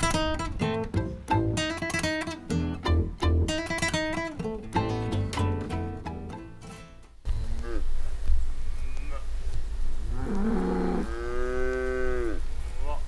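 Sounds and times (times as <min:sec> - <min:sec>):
acoustic guitar music: 0:00.0 - 0:08.1.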